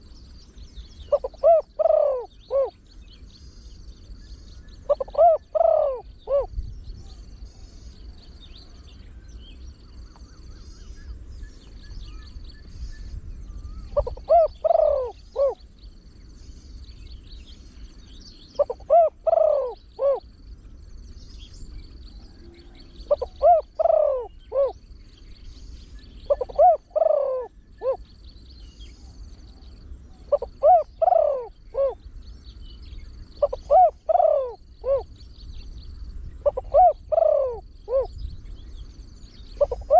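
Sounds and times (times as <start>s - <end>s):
birds chirping in background: 0.0s - 39.9s
dove cooing: 1.0s - 2.9s, 4.8s - 9.4s, 13.7s - 15.8s, 18.5s - 20.5s, 21.6s - 25.0s, 26.0s - 32.1s, 33.2s - 35.3s, 36.4s - 38.2s, 39.4s - 39.9s.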